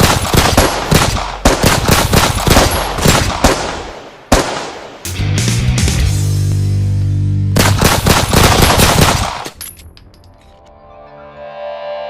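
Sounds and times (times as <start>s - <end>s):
machine-gun fire: 0.0s - 4.9s, 7.6s - 9.5s
low music tone: 5.1s - 7.6s, 10.0s - 12.0s.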